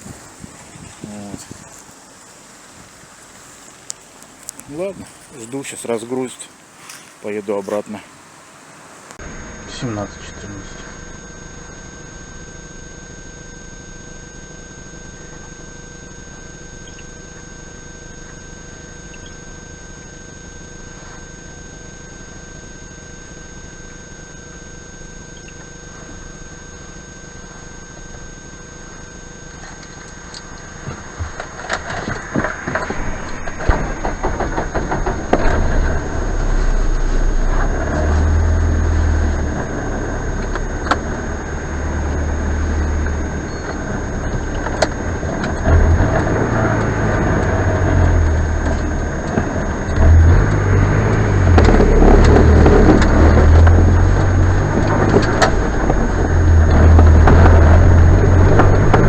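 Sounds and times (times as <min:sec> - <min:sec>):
vehicle engine starting and running: 0:00.0 - 0:12.9, 0:25.0 - 0:59.0.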